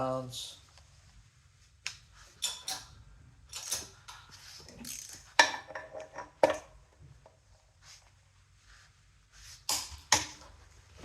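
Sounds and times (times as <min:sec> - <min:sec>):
metal hand tools clinking and ratcheting: 0:02.4 - 0:06.3.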